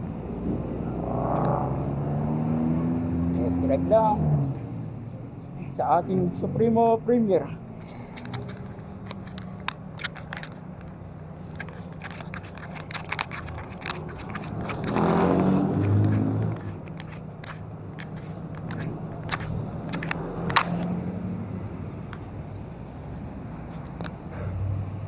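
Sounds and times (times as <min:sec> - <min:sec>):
road and traffic noise: 0:00.0 - 0:25.0
vehicle engine passing: 0:00.0 - 0:25.0
bicycle clicks and rattles: 0:07.8 - 0:20.9.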